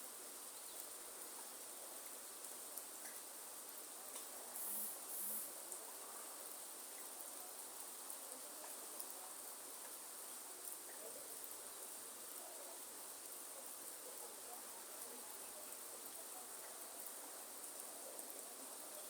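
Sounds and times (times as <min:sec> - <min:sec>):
faint steady rain: 0:00.0 - 0:19.0
high-pitched insect chorus: 0:04.6 - 0:05.5.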